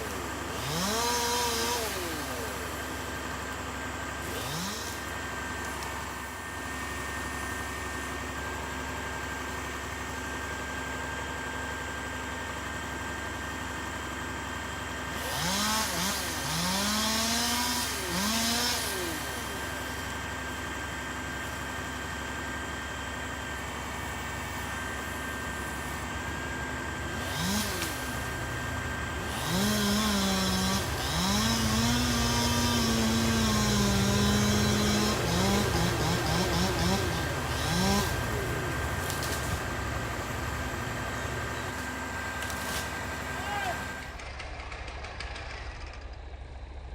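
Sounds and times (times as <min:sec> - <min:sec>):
chainsaw revving: 0:00.0 - 0:07.7, 0:15.0 - 0:20.8, 0:24.5 - 0:46.4
low drone of engine: 0:00.0 - 0:46.9.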